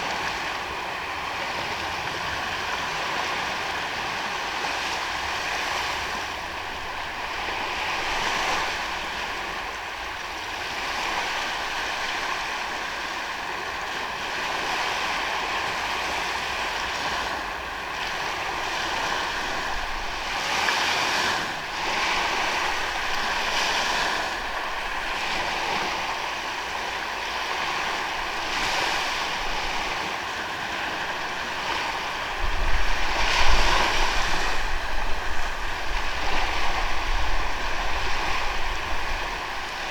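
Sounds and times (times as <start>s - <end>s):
ocean surf washing onto beach: 0.0s - 39.9s
wind buffeting microphone: 17.0s - 39.9s.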